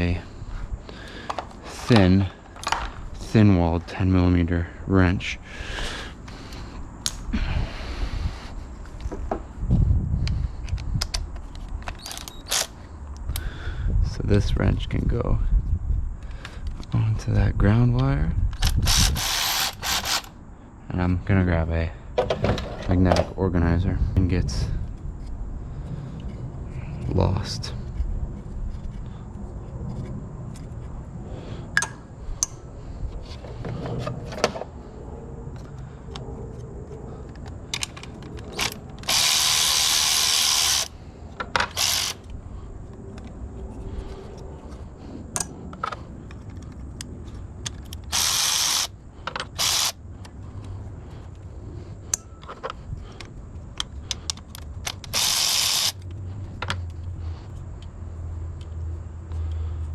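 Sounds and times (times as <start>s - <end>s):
socket ratchet clicking: 10.6s - 12.8s, 18.6s - 20.3s, 37.4s - 40.9s, 41.5s - 42.4s, 46.3s - 50.0s, 53.2s - 56.8s.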